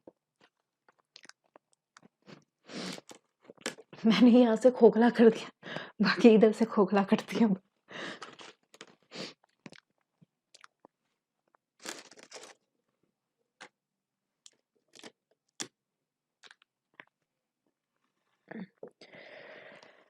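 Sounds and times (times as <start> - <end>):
person chewing cake: 0.0 - 4.0, 8.2 - 12.7, 14.4 - 15.8, 16.4 - 19.0.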